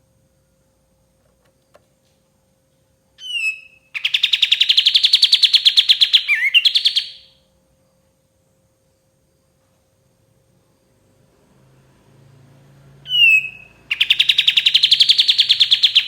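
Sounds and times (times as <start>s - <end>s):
bulbul singing a fast trill: 3.2s - 7.4s, 13.0s - 16.0s.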